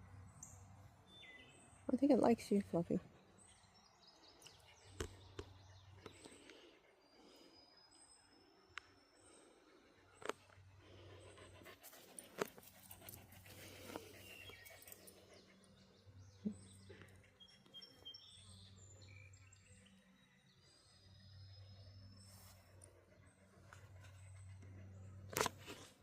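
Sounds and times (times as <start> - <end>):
dog panting: 10.0 - 17.7, 22.8 - 26.0
faint high bird chirps: 14.2 - 22.7.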